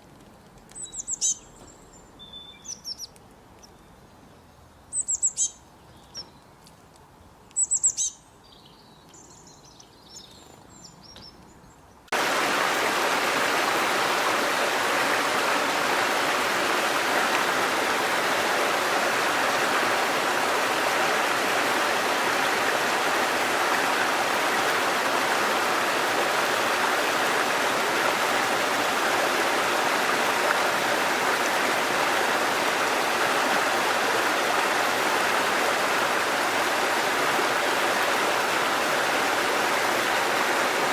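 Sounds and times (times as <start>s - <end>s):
birds chirping: 0.7s - 6.6s, 7.5s - 12.4s
stream water flowing: 12.1s - 40.9s.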